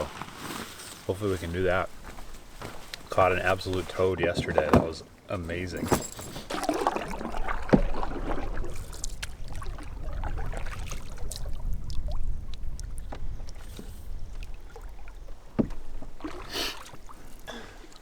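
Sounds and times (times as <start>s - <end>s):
light water splashes: 1.5s - 18.0s
small knocks: 15.5s - 16.1s.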